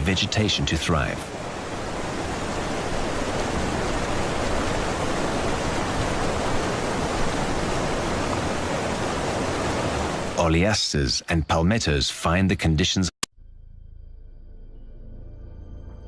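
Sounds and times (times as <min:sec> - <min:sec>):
rushing water: 0:00.0 - 0:11.1.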